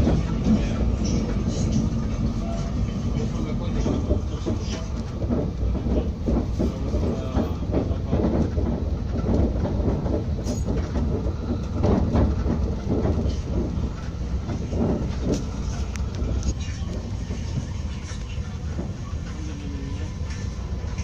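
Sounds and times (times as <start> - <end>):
train wheels rumbling on rail: 0.0 - 21.0
knocks and rattles: 3.8 - 16.5.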